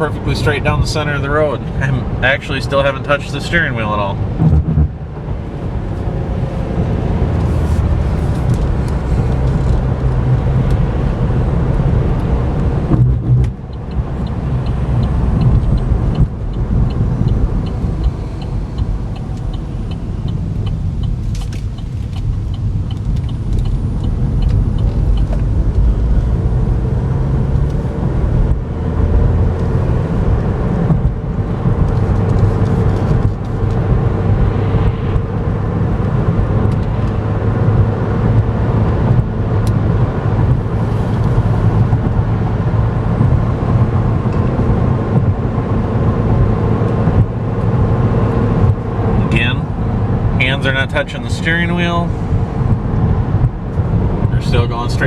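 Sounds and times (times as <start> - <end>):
road and tyre rumble in car: 0.0 - 55.0
faint ticking: 13.7 - 26.4.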